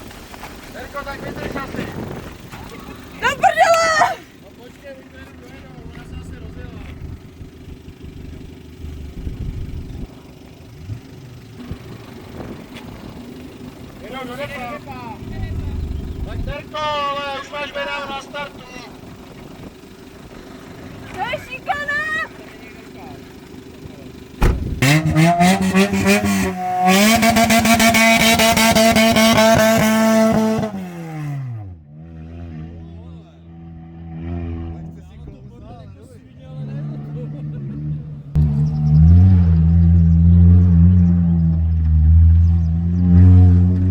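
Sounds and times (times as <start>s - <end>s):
car engines idling: 0.0s - 43.9s
sharp knock: 24.4s - 24.8s
rally car engine revving hard: 24.4s - 35.0s, 36.6s - 43.9s.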